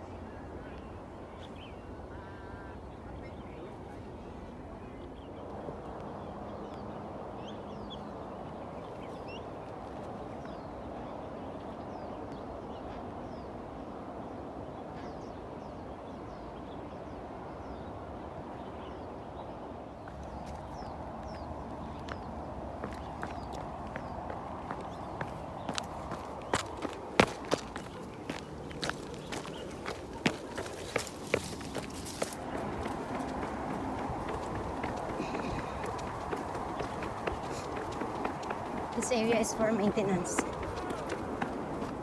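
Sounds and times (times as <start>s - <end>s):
small birds chirping: 20.0s - 42.0s
steady rushing noise: 21.2s - 42.0s.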